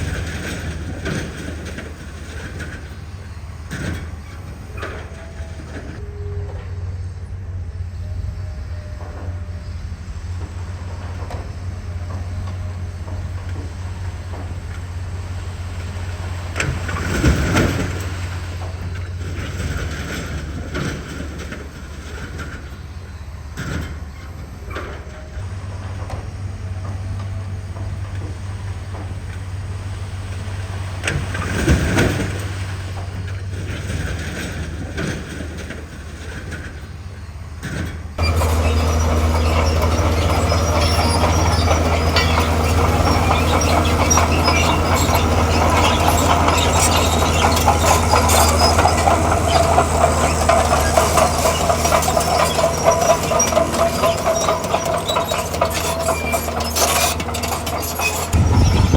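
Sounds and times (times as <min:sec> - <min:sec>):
metal clanking and scraping debris: 0:00.0 - 0:06.0, 0:31.0 - 0:58.9
heavy diesel machine running: 0:00.0 - 0:58.9
loud engine: 0:00.0 - 0:58.9.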